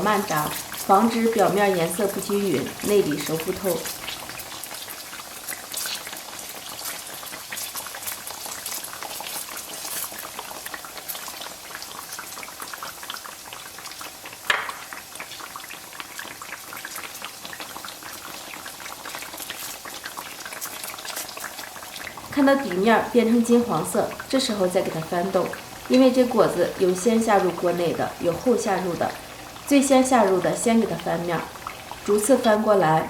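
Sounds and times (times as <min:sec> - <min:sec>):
oil sizzling and crackling: 0:00.0 - 0:33.0
oil pop: 0:14.5 - 0:14.9.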